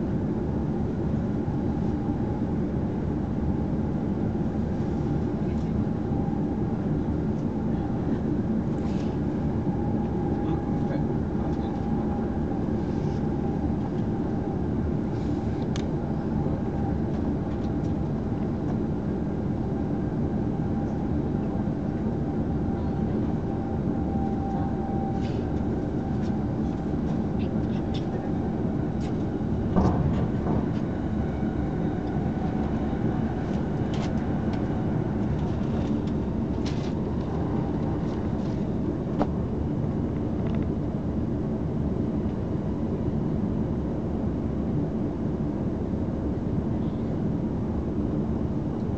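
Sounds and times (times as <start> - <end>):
train wheels rumbling on rail: 24.2 - 39.4.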